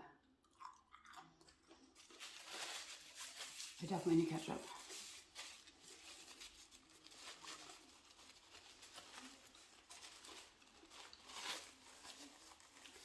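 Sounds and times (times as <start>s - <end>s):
person chewing crispy food: 0.4s - 2.6s.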